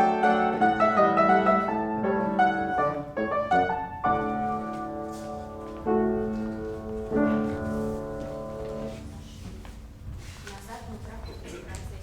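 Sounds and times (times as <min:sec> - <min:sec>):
piano chords: 0:00.0 - 0:10.0.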